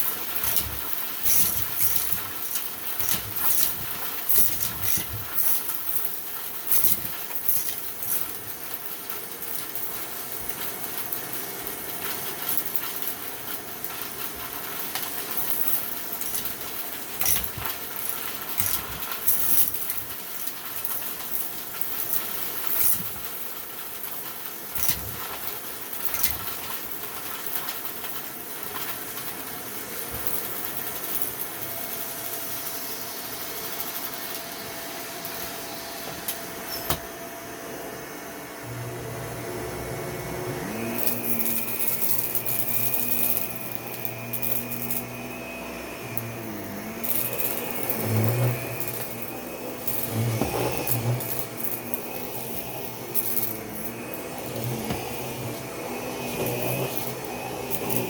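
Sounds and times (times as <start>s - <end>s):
vacuum cleaner on carpet: 0.0s - 58.0s
thin high whine: 31.4s - 58.0s
low motor hum: 36.3s - 58.0s.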